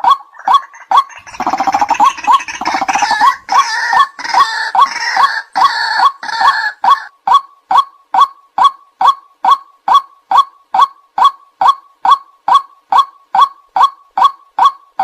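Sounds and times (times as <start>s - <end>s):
waterhen kwak calls: 0.0s - 7.1s
harsh overlapping bird calls: 0.0s - 15.0s.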